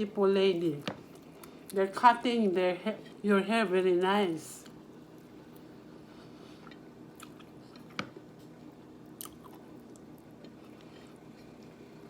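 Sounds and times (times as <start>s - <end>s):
steady low hum: 0.0s - 12.0s
person chewing food: 6.3s - 12.0s.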